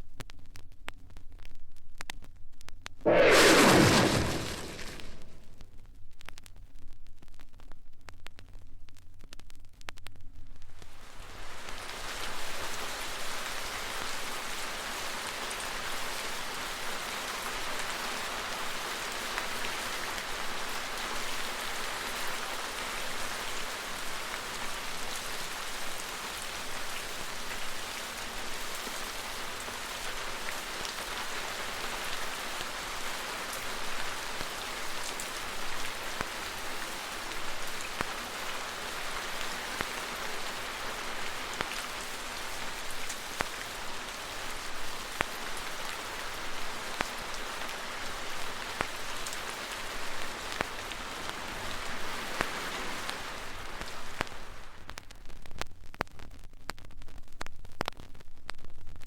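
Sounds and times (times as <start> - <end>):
heavy rain hissing: 3.1 - 5.4, 10.9 - 54.9.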